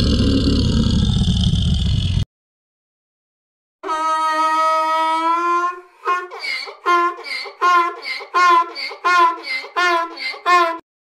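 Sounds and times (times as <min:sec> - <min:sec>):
donkey braying: 0:03.9 - 0:10.8.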